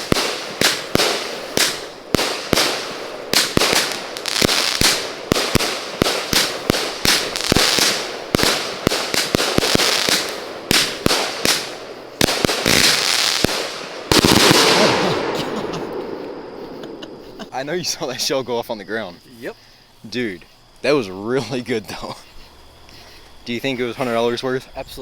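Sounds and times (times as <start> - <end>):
firework bangs: 0.0 - 17.5
firework crackling hiss: 0.0 - 17.8.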